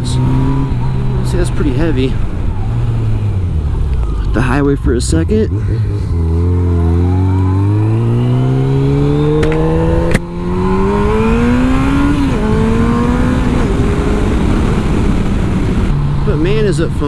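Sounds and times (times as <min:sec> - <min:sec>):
motorcycle engine accelerating hard: 0:00.0 - 0:17.0.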